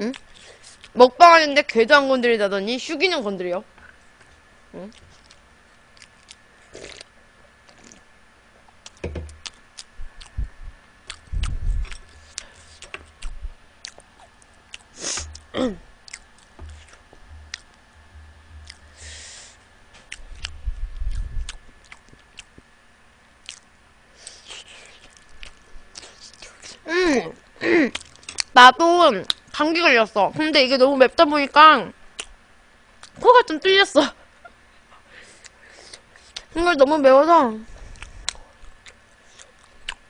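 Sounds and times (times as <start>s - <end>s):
wet chewing: 8.8s - 10.4s, 11.0s - 17.8s, 18.6s - 18.9s, 20.0s - 22.6s, 23.4s - 26.8s, 37.9s - 40.0s
dull low knocks: 9.0s - 9.4s.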